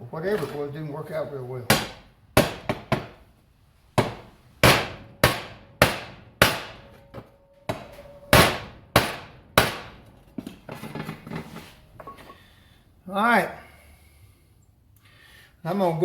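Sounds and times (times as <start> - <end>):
hammer striking steel bumper: 1.7 - 3.2, 4.0 - 10.6.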